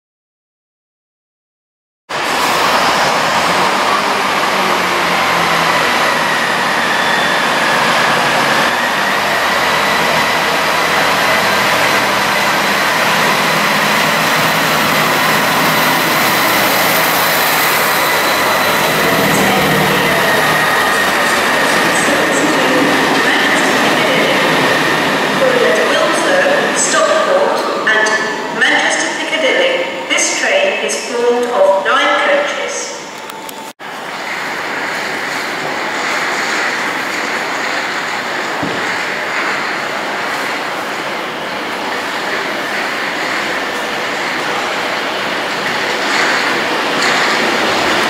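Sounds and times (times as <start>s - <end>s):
high whine: 2.1s - 29.0s
diesel train rumbling: 2.1s - 48.0s.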